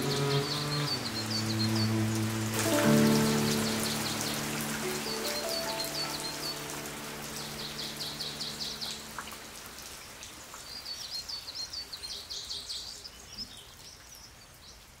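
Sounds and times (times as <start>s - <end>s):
piano and cello music: 0.0s - 9.5s
rain patter: 0.0s - 15.0s
songbird singing: 0.0s - 15.0s.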